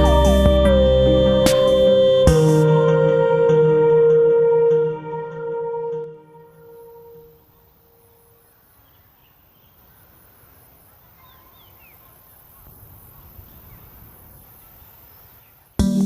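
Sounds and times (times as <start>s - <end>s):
faint background hiss: 0.0s - 16.0s.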